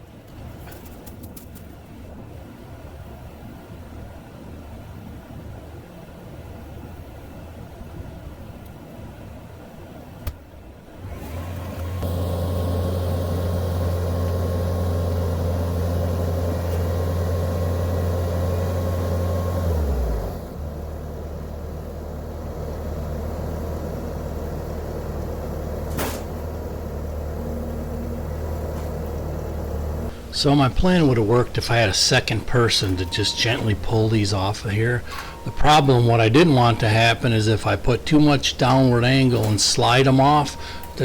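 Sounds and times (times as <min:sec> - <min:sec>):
diesel engine revving: 0:11.0 - 0:41.0
thin whine: 0:20.7 - 0:41.0.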